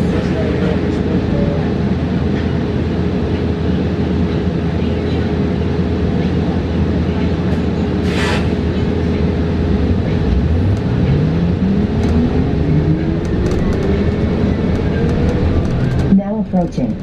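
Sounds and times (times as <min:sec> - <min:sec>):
bus road and body rumble: 0:00.0 - 0:17.0.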